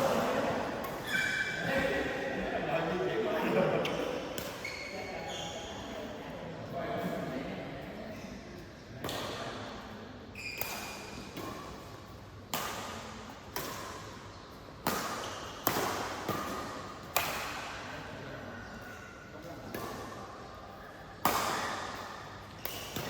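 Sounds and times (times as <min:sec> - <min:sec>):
short high squeak: 0:01.0 - 0:01.6
racket hitting shuttlecock: 0:10.5 - 0:18.0, 0:19.7 - 0:20.2, 0:21.2 - 0:23.0.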